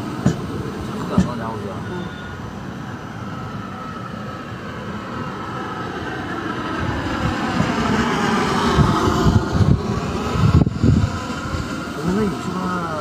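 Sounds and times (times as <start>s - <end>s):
train rumble: 0.0s - 13.0s
faint whine falling in pitch: 1.5s - 4.5s.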